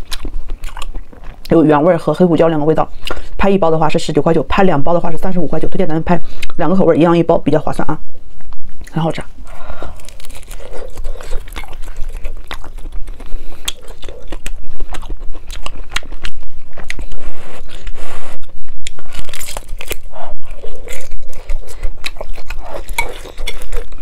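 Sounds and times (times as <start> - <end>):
wet chewing clicks: 0.0 - 1.6, 10.0 - 24.0
crunching crispy chicken: 10.0 - 17.1, 18.9 - 24.0.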